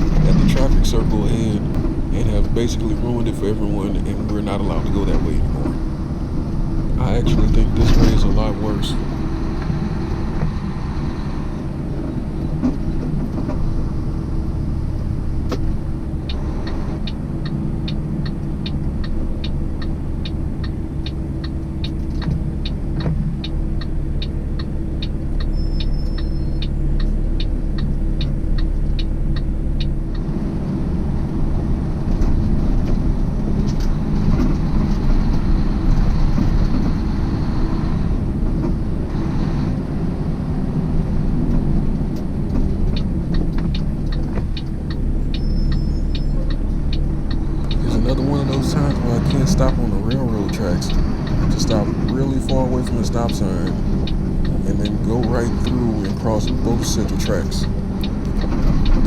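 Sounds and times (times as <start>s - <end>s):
truck engine running: 0.0s - 10.4s, 46.6s - 59.0s.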